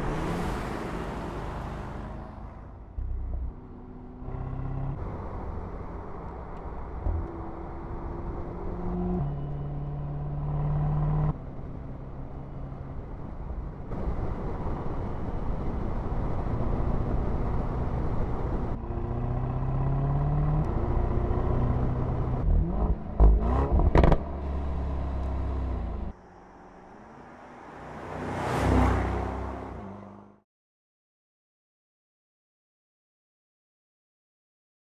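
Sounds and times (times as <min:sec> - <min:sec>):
car engine accelerating: 0:00.0 - 0:13.0, 0:15.7 - 0:30.4.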